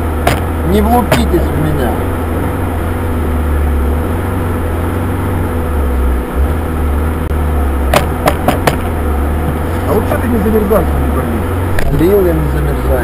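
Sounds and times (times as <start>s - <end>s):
car engine and blower fan rumble: 0.0s - 13.0s
sharp knocks: 0.2s - 1.4s, 7.9s - 9.6s.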